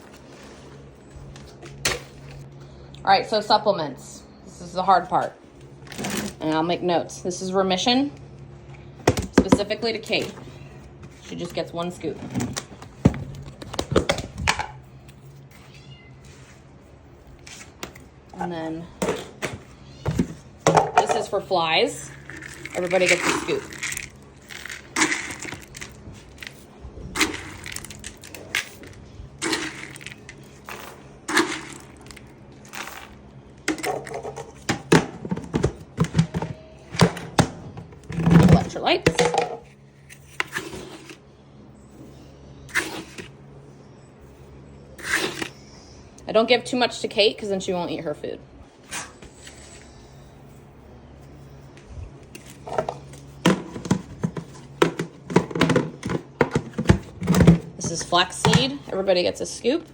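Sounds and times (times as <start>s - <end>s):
low steady hum: 0.0s - 59.9s
plastic buckets knocking and clattering: 19.0s - 21.4s, 33.6s - 39.7s, 52.6s - 58.9s.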